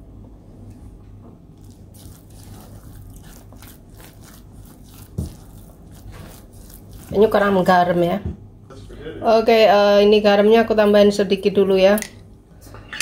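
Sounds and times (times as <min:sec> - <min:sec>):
person chewing: 0:01.6 - 0:07.2.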